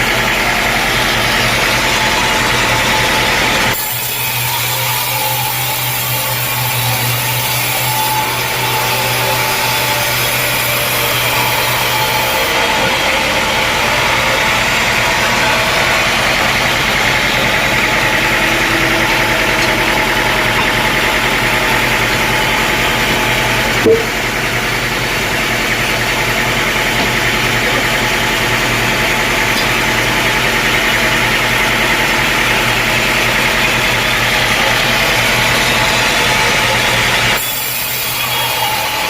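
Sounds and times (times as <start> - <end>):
sawmill engine running: 0.0 - 39.0
low hum: 8.4 - 26.4
brief sharp sound: 23.8 - 24.4.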